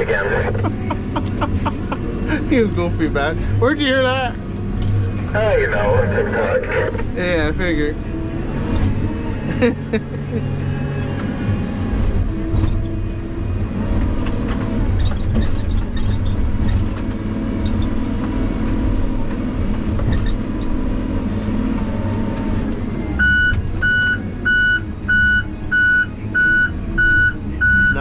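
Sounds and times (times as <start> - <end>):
heavy equipment engine running: 0.0 - 28.0
backup alarm beeping: 23.2 - 28.0.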